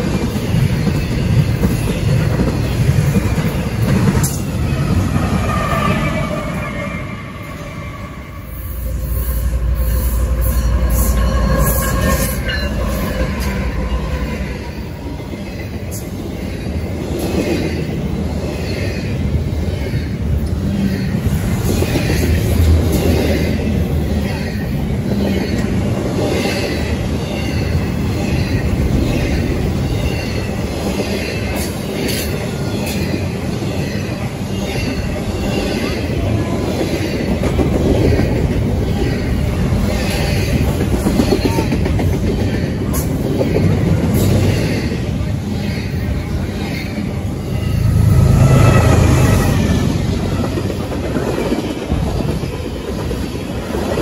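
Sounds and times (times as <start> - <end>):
train heavy low rumble: 0.0 - 54.0
high ringing tone: 5.4 - 15.9.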